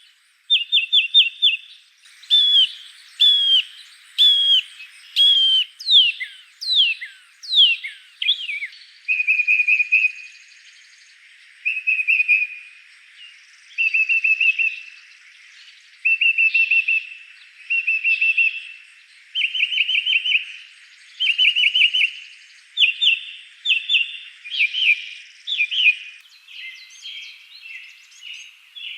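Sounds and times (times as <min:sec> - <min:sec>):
songbird singing: 0:00.0 - 0:28.9.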